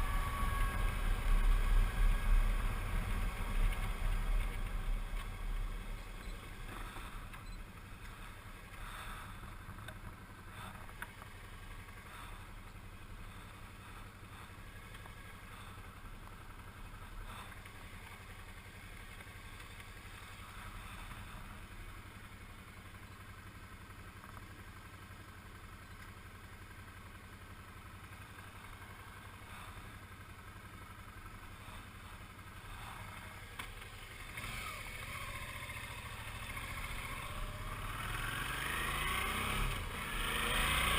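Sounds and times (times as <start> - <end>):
motorcycle engine droning: 0.0 - 40.9.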